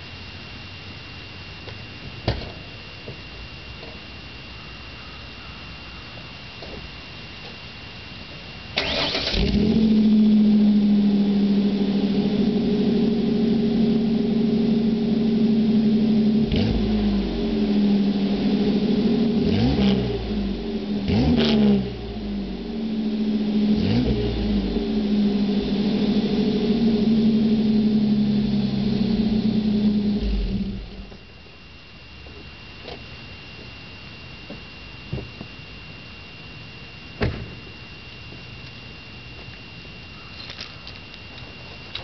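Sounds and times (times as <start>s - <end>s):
truck engine cranking and idling: 8.7s - 31.3s
engine revving: 8.8s - 31.1s.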